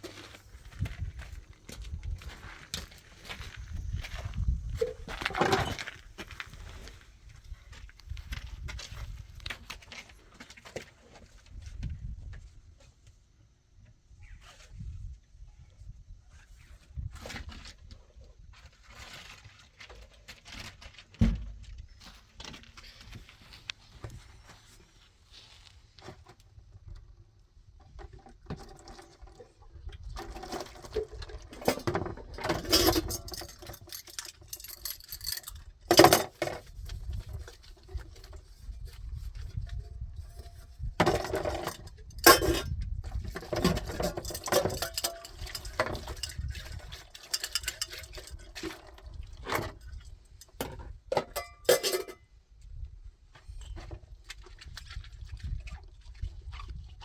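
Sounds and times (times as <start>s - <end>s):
objects knocking and clinking: 30.4s - 36.6s, 41.0s - 48.6s, 50.6s - 52.2s.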